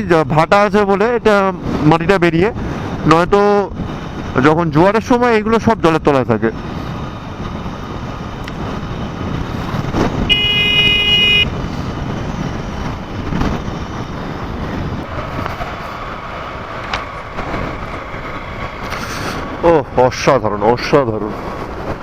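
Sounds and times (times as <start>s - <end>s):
wind and road noise: 0.0s - 22.0s
vehicle horn toot: 10.3s - 11.6s.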